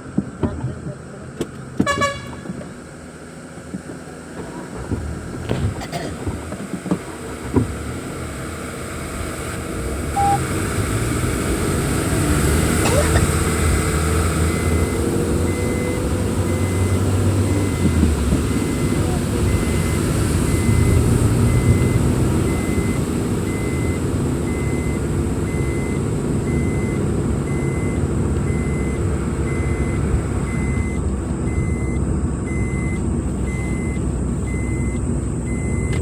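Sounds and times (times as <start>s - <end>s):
vehicle engine and road noise: 0.0s - 36.0s
short beep: 10.2s - 10.4s, 14.5s - 36.0s.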